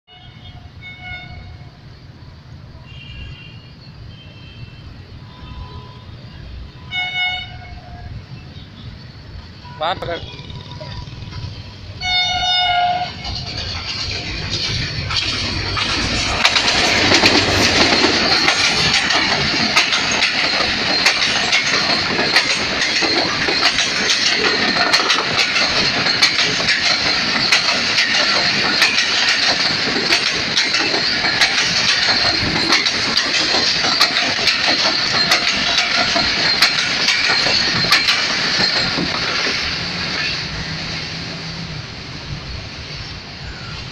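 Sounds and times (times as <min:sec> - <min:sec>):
train wheels rushing on rails: 0:06.4 - 0:43.9
wheels clicking over rail joints: 0:10.0 - 0:41.5.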